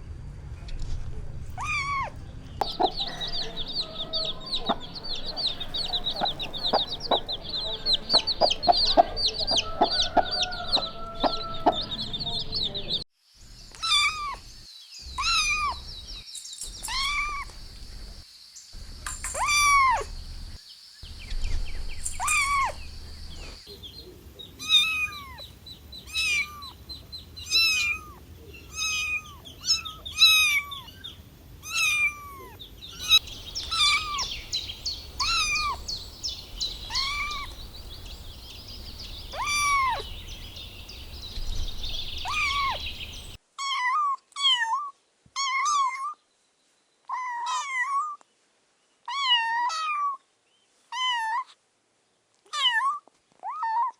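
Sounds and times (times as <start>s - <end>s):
kittens meowing: 1.6s - 12.2s, 15.2s - 15.8s, 16.8s - 17.5s, 19.2s - 20.1s, 22.2s - 22.8s, 24.6s - 25.5s, 26.1s - 26.8s, 27.5s - 30.9s, 31.6s - 43.4s.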